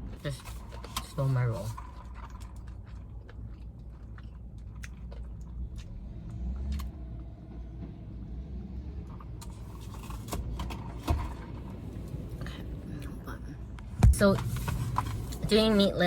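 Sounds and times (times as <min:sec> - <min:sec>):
chewing crispy fried chicken: 0:00.0 - 0:06.9
low rumble: 0:00.0 - 0:10.2.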